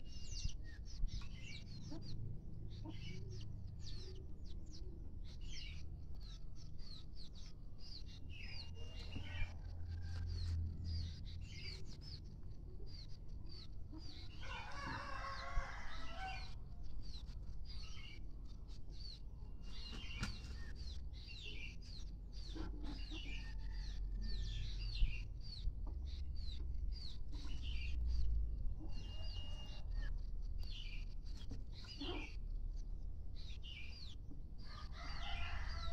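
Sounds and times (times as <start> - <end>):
chickens peeping and clucking: 0.0 - 35.9
low steady rumble: 20.5 - 35.0.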